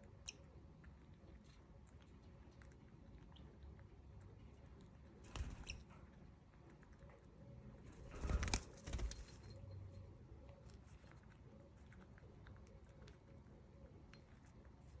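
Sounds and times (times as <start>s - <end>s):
birds fluttering wings: 5.2s - 5.8s, 7.9s - 9.5s.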